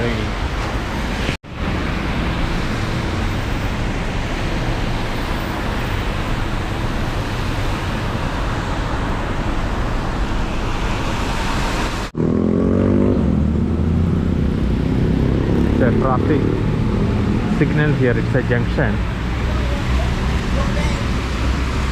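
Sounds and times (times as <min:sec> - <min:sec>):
heavy rain: 0:00.0 - 0:12.2
vehicle engine humming: 0:01.4 - 0:21.9.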